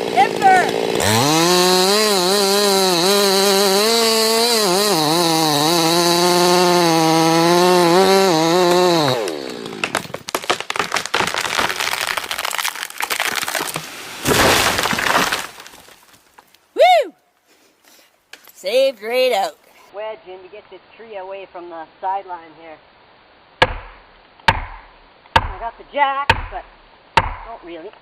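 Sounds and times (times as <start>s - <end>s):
chainsaw cutting tree trunk: 0.0s - 16.0s.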